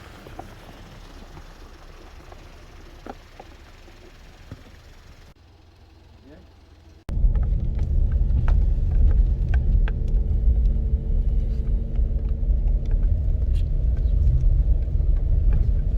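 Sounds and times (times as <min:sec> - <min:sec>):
car engine rumbling: 0:00.0 - 0:15.9.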